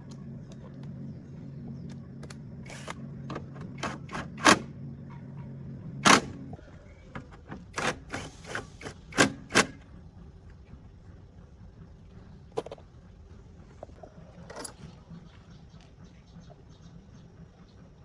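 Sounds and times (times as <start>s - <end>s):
steady low hum: 0.0s - 18.0s
sharp clicks and knocks: 7.1s - 9.9s.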